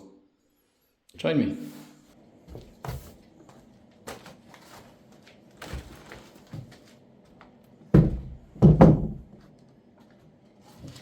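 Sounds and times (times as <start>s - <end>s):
wooden door knocks and clunks: 7.9s - 9.3s.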